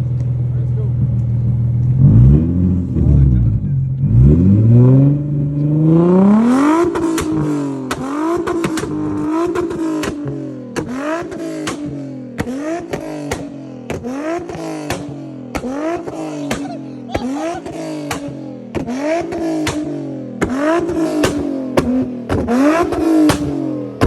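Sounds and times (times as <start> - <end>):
car exhaust revving: 0.0 - 24.0
exhaust pops and bangs: 6.5 - 24.0.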